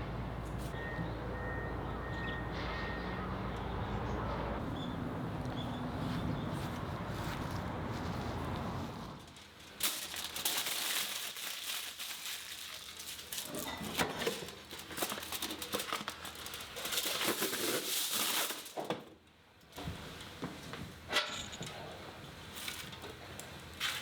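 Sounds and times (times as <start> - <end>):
wrapping sheet crinkling: 9.2 - 18.8.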